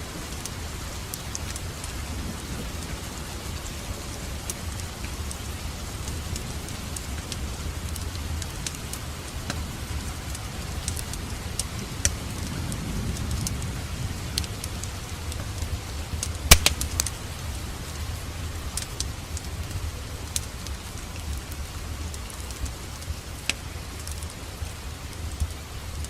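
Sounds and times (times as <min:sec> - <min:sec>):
fire crackling in fireplace: 0:00.0 - 0:26.0
loud pop from fire: 0:16.5 - 0:17.1.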